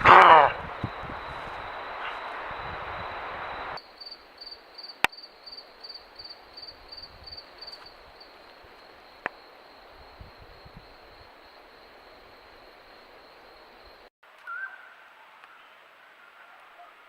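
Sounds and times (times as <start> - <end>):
cricket chirping: 0.1 - 14.1
steady hiss: 0.6 - 14.1.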